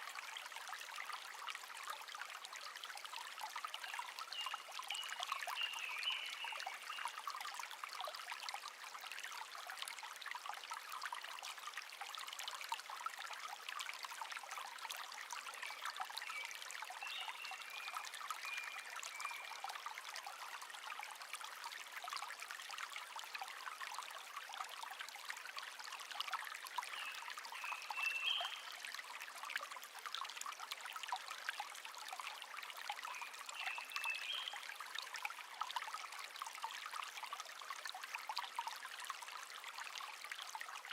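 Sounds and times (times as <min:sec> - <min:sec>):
small stream babbling: 0:00.0 - 0:40.9
faint bird chirps: 0:27.0 - 0:28.7.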